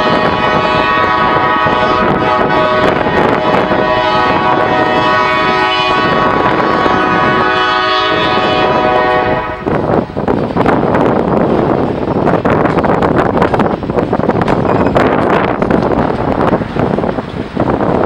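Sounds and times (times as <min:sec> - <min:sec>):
locomotive air horn: 0:00.0 - 0:09.8.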